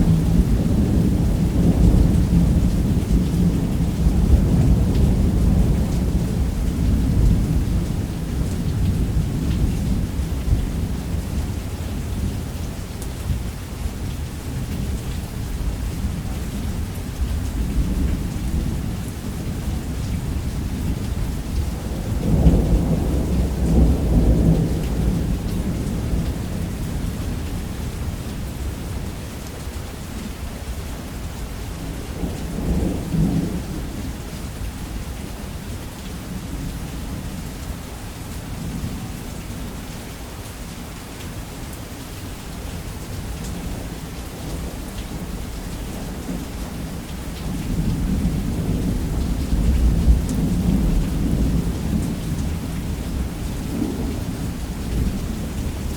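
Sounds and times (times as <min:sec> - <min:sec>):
heavy rain: 0:00.0 - 0:55.9
rolling thunder: 0:20.2 - 0:28.1, 0:47.4 - 0:55.9.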